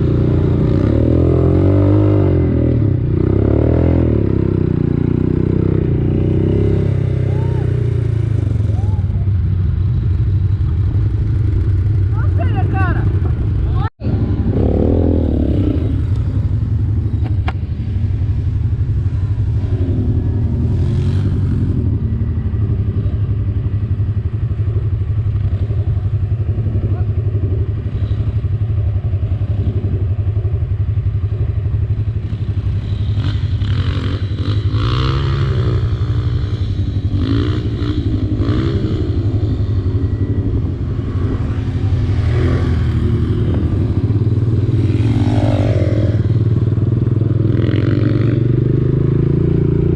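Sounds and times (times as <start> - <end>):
quad bike engine revving: 0.0 - 9.0, 11.4 - 17.8, 19.0 - 23.9, 31.2 - 49.9.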